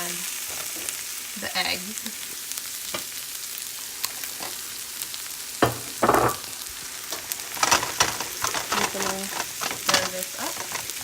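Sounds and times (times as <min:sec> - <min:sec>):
rice sizzling in a pan: 0:00.0 - 0:11.0
clicks and scrapes: 0:07.1 - 0:11.0.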